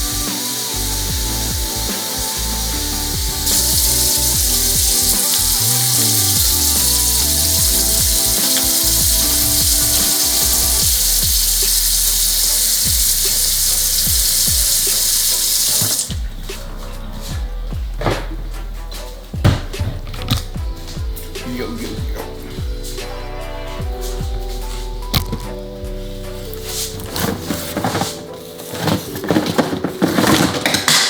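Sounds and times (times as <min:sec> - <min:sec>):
vacuum cleaner running: 0:00.0 - 0:16.2
background music with steady beat: 0:00.0 - 0:31.0.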